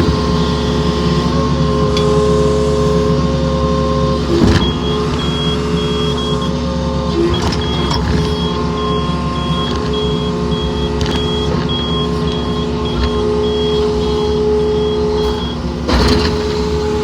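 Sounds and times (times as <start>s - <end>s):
excavator diesel engine running: 0.0s - 17.0s
loud clunk: 9.4s - 17.0s.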